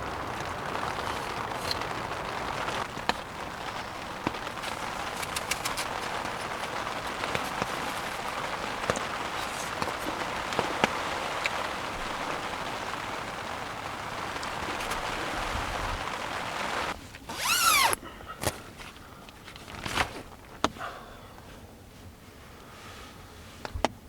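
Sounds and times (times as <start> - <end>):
rain hiss: 0.0 - 19.8
zipper rasp: 17.3 - 18.0.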